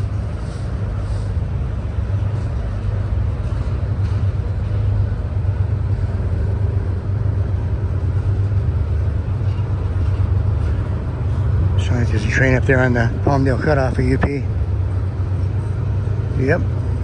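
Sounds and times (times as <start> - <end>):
freight train rumbling: 0.0 - 17.0.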